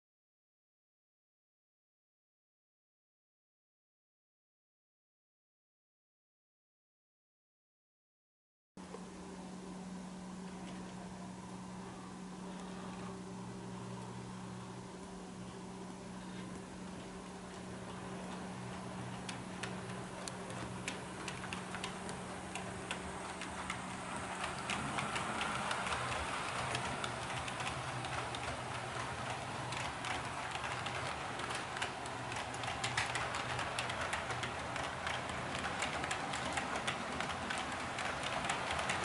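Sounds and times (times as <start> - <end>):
steady hum: 8.8 - 39.0
model train wheels clicking: 17.5 - 39.0.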